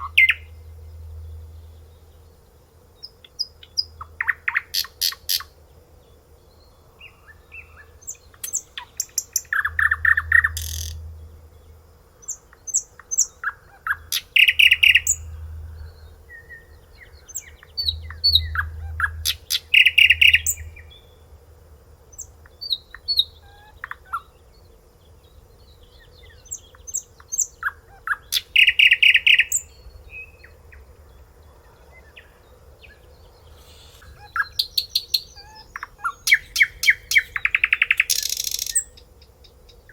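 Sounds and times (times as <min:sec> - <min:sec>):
songbird trilling: 0:00.0 - 0:02.3, 0:03.0 - 0:05.6, 0:07.0 - 0:21.2, 0:26.1 - 0:30.5, 0:32.2 - 0:39.8
faint steady hum: 0:00.0 - 0:39.9
high bird chirps: 0:08.1 - 0:11.4, 0:12.7 - 0:21.0, 0:33.5 - 0:39.0.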